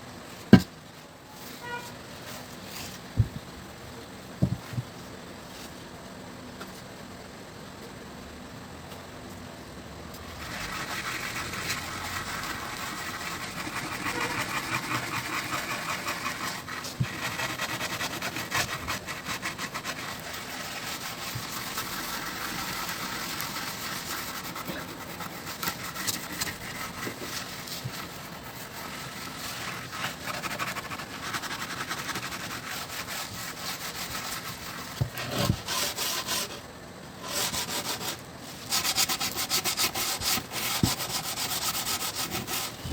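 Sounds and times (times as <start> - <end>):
sandpaper rubbing on wood: 10.4 - 36.6, 37.2 - 42.9.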